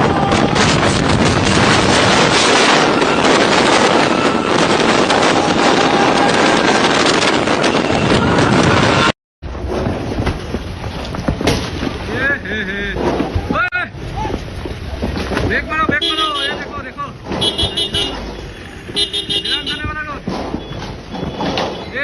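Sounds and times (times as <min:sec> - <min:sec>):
loud rushing noise: 0:00.0 - 0:10.3
wind buffeting microphone: 0:00.0 - 0:12.1.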